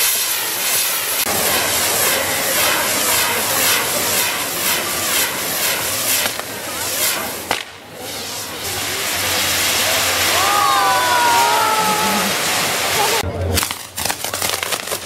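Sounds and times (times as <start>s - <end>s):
firework tower hissing: 0.0s - 15.0s
sharp crack: 3.1s - 8.2s, 13.5s - 15.0s.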